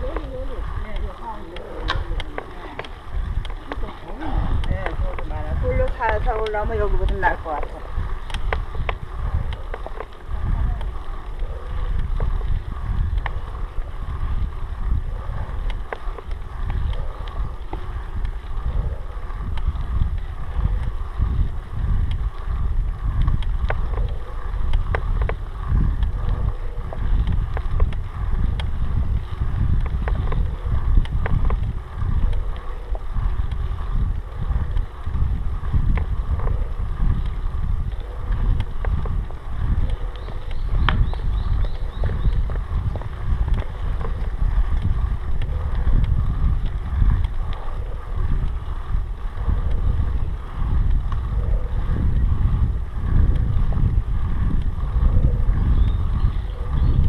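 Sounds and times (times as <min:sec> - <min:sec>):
faint clicks and rattles: 0:00.0 - 0:55.3
wind buffeting microphone: 0:00.0 - 0:57.0.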